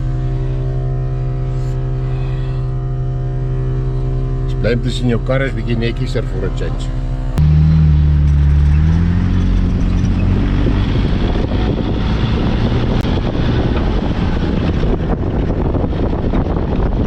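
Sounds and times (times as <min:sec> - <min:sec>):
tyres and road noise: 0:00.0 - 0:17.0
vehicle engine accelerating: 0:00.0 - 0:17.0
wind on microphone: 0:09.0 - 0:17.0.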